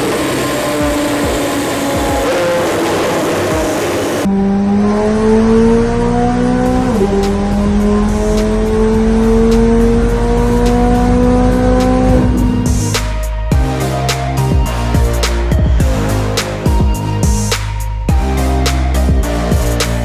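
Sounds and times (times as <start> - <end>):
sports car engine accelerating hard: 0.0 - 13.8.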